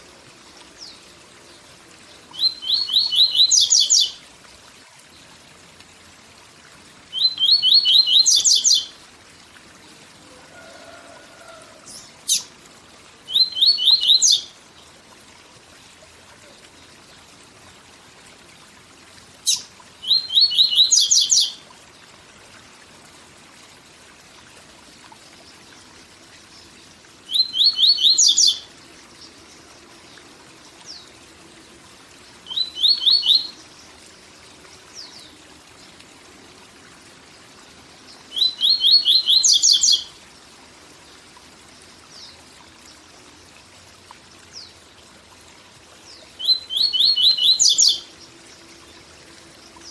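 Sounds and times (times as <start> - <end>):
waterfall rushing: 10.1 - 12.6.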